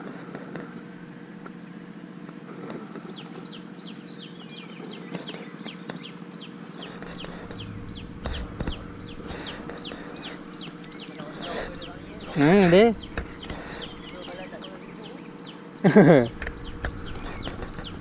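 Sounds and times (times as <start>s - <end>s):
steady low hum: 6.8s - 18.0s.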